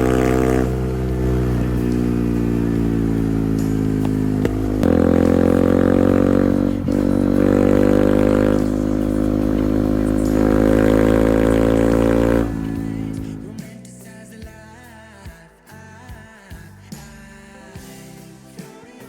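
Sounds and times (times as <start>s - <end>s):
motorcycle engine revving: 0.0s - 13.7s.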